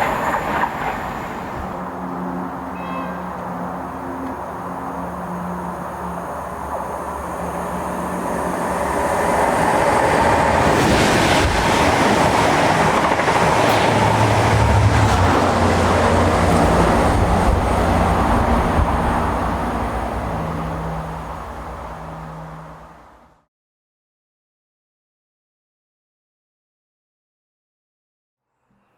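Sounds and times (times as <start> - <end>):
train wheel noise: 0.0 - 22.6
diesel locomotive engine drone: 0.0 - 23.4.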